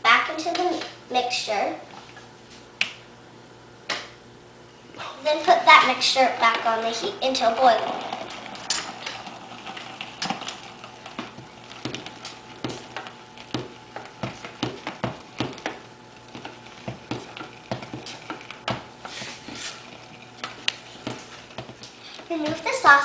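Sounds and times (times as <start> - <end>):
utensil scraping a saucepan: 19.1 - 22.3.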